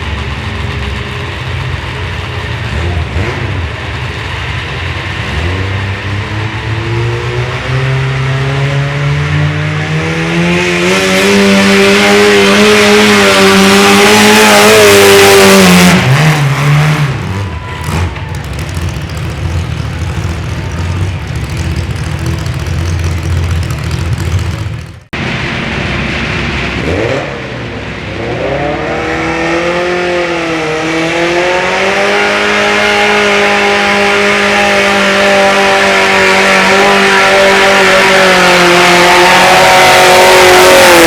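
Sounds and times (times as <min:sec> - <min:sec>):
garden tractor engine under load: 0:14.3 - 0:25.2.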